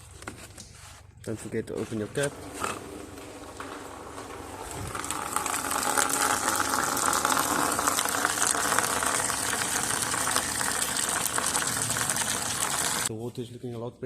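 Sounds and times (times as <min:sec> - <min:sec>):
water splashing into a container: 0:04.1 - 0:13.1.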